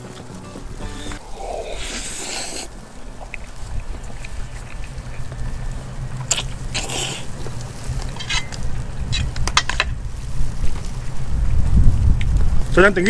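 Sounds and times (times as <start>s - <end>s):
wind rumble on microphone: 1.2s - 13.0s
wet chewing and mouth smacks: 1.3s - 8.2s.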